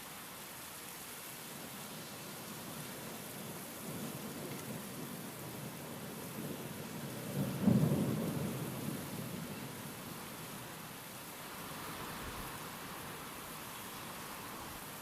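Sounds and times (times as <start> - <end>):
steady rain: 0.0 - 15.0
thunder rumbling: 6.3 - 9.5.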